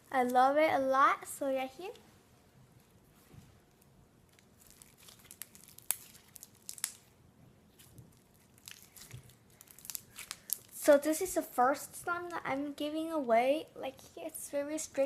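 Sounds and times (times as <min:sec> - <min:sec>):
slime squished by hand: 0:04.3 - 0:07.2, 0:07.8 - 0:10.9.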